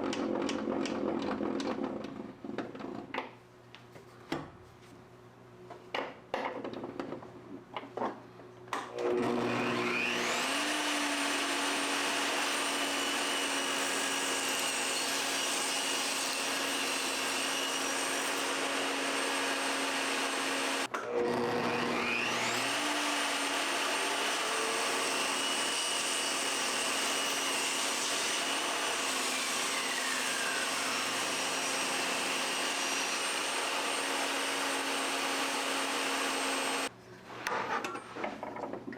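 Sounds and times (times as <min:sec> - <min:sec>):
power tool cutting wood: 0:08.9 - 0:36.9.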